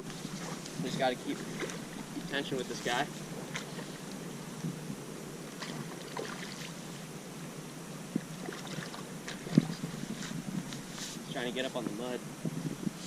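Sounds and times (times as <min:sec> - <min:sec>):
shallow water lapping and splashing: 0:00.0 - 0:07.1, 0:08.1 - 0:11.2.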